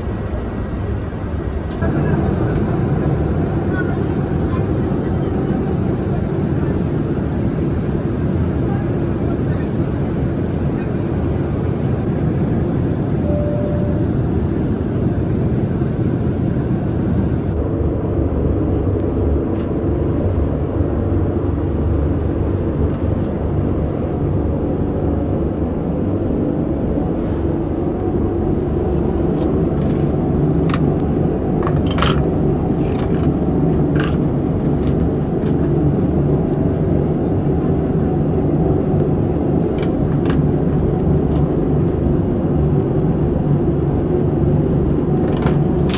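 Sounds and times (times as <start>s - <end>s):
vehicle interior rumble: 19.1s - 38.0s, 38.8s - 43.1s, 44.0s - 45.9s.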